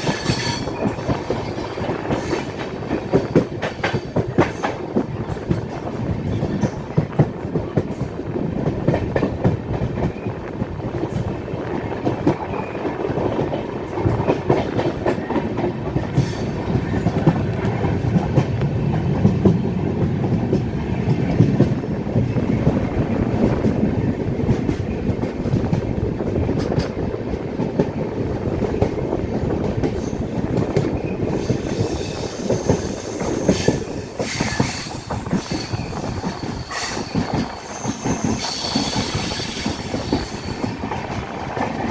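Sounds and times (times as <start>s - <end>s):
wheels squealing on rail: 0.0s - 7.0s, 15.2s - 18.0s, 29.9s - 41.2s
train rumbling: 0.0s - 41.9s.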